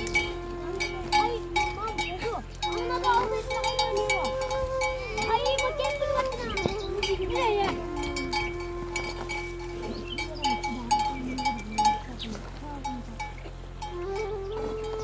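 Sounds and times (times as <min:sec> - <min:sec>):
animal calls: 0:00.0 - 0:15.0
livestock bells clinking: 0:00.0 - 0:15.0
steady held tone: 0:00.0 - 0:15.0.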